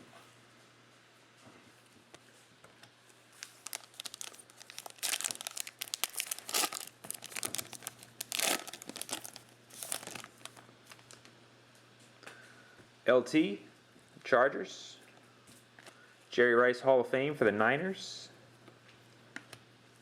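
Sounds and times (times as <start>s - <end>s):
plastic wrapper tearing and crinkling: 3.3s - 11.3s.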